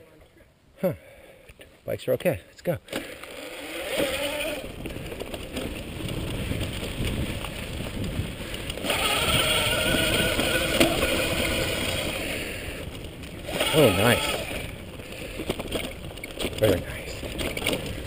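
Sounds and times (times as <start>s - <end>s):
riding noise: 3.0s - 18.0s
electric bike motor whining: 3.1s - 16.5s.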